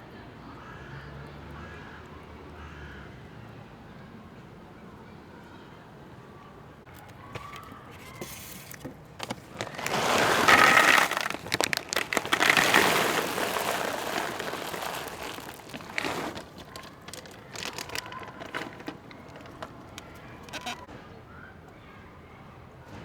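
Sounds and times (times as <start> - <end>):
plastic bag of dry food crinkling: 6.9 - 20.9.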